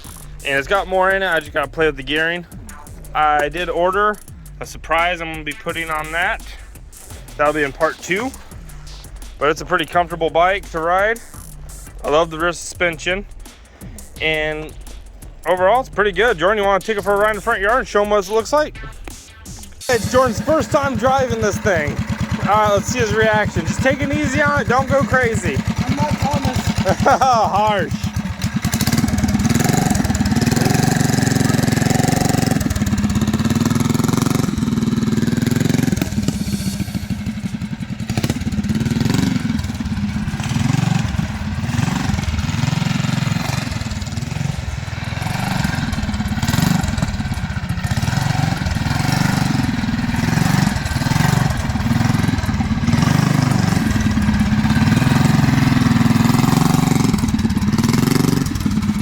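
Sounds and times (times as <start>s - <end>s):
mini bike engine: 19.8s - 59.0s.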